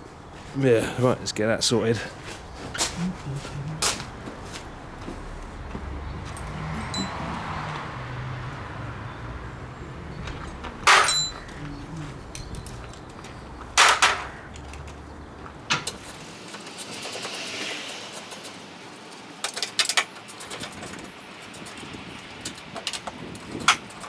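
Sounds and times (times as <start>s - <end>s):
metal tools clanking on car body: 9.5s - 17.1s.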